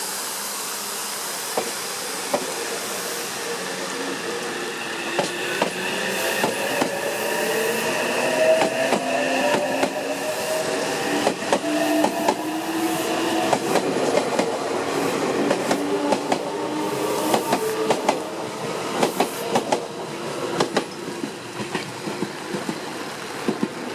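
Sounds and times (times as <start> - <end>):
train wheels clacking: 5.0 - 23.9.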